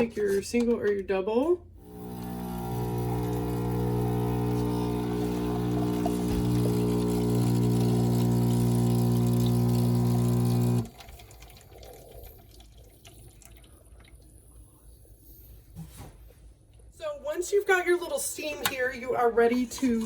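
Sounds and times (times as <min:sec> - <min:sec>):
espresso machine pump humming: 0:01.8 - 0:11.2.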